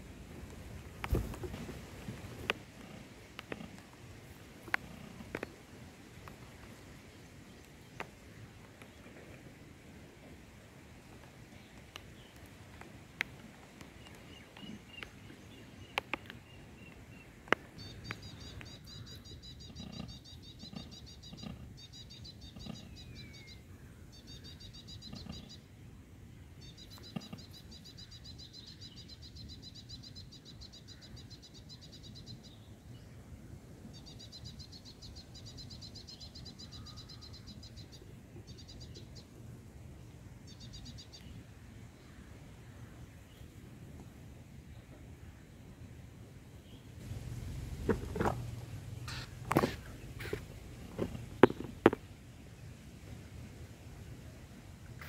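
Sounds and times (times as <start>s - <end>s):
low steady background hum: 0.0s - 55.0s
small bird chirping rapidly: 17.8s - 23.6s, 49.0s - 50.4s.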